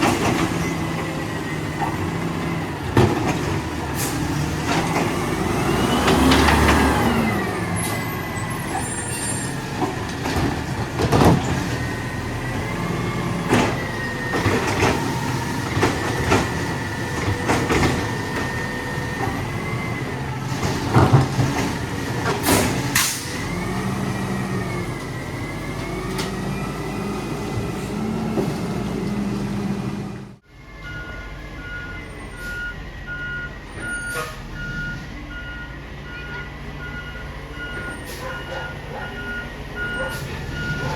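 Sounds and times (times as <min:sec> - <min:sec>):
truck engine revving: 0:00.0 - 0:30.4, 0:36.9 - 0:40.9
metal bangs and clunks: 0:09.5 - 0:12.7.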